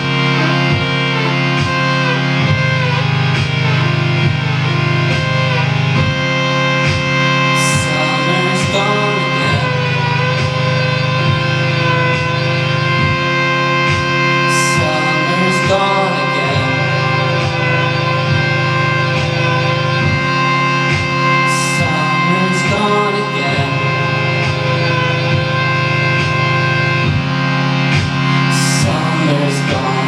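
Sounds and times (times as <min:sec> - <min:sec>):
live band playing: 0:00.0 - 0:30.0.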